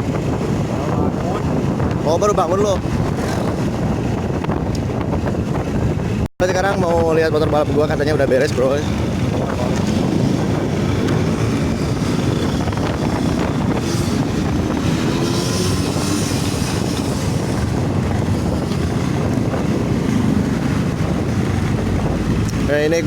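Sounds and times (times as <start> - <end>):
wind rushing over microphone: 0.0 - 23.0
motorcycle engine running: 8.0 - 23.0.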